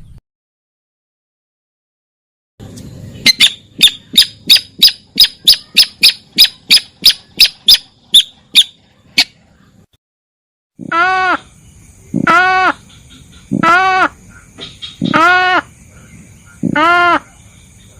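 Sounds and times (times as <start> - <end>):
sharp high bird call notes: 3.3 - 9.3, 12.2 - 15.7.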